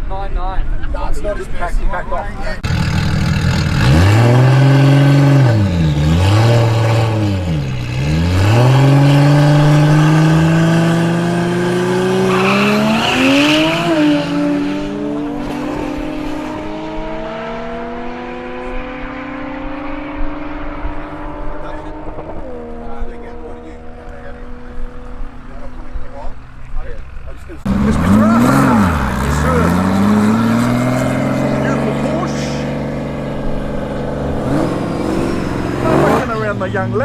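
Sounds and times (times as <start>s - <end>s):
car engine accelerating hard: 2.2s - 37.0s.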